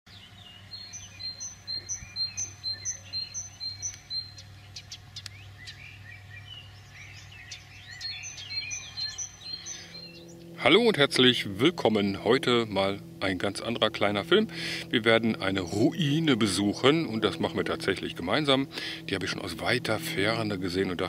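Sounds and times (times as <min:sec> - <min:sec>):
rapid high bird chirps: 0:00.1 - 0:10.7
low steady hum: 0:00.1 - 0:21.0
scattered bird calls: 0:00.1 - 0:21.0.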